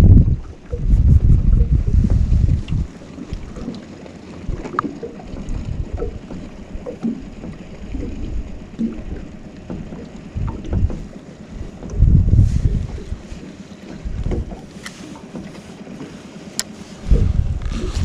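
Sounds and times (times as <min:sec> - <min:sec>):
water lapping against boat: 0:00.0 - 0:18.0
wind rumbling on microphone: 0:00.0 - 0:18.0
light knocks and clicks: 0:08.8 - 0:11.1, 0:13.8 - 0:17.3.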